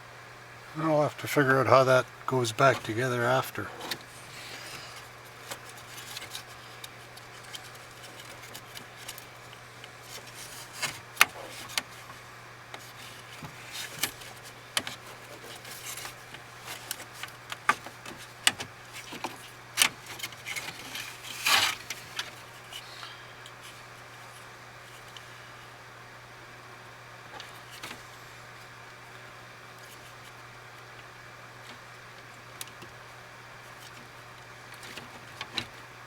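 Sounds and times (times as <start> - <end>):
steady low hum: 0.0 - 36.0
scrape: 20.6 - 21.9.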